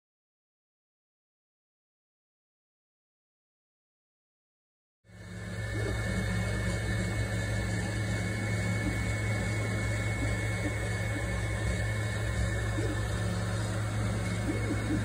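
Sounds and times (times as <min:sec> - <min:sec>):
mechanical hum: 0:05.1 - 0:15.0.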